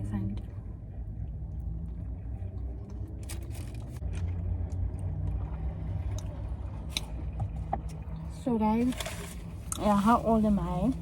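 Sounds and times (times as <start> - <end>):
steady low rumble: 0.0 - 11.0
crunching and chewing food: 1.2 - 5.5.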